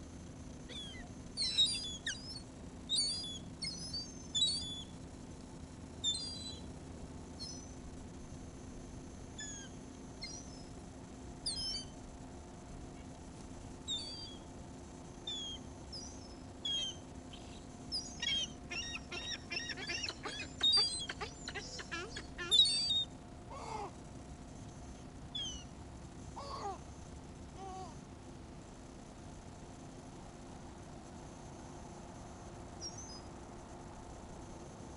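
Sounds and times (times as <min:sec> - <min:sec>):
seagulls calling: 0:18.0 - 0:23.0.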